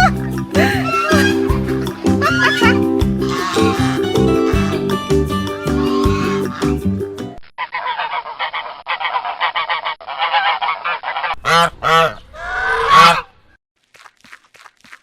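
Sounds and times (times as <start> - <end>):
geese honking: 0.0 - 7.0, 7.6 - 13.3.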